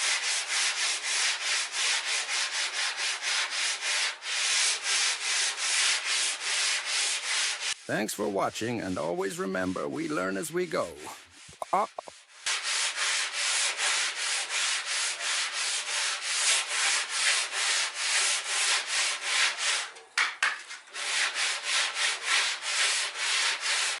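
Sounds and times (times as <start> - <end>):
sandpaper rubbing on wood: 0.0 - 19.9, 20.8 - 24.0.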